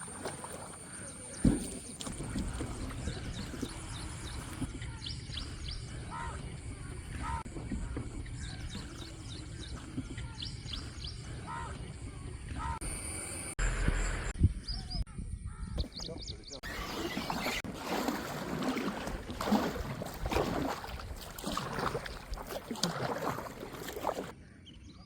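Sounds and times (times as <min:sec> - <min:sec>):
birds calling and chirping: 0:00.0 - 0:17.7.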